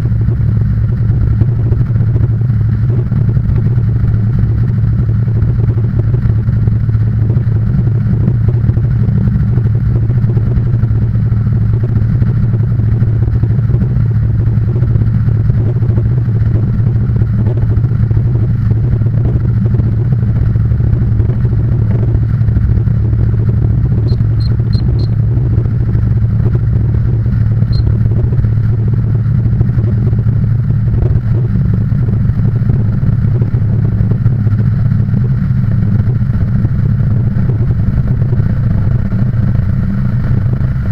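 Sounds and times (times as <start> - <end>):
engine humming steadily: 0.0 - 40.9
faint high ticks: 24.1 - 25.2.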